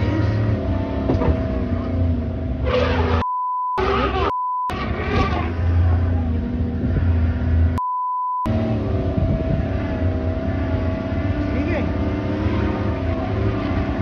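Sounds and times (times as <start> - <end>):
vehicle engine running: 0.0 - 3.2, 3.8 - 7.8, 8.5 - 14.0
censor bleeps: 3.2 - 4.8, 7.8 - 8.5.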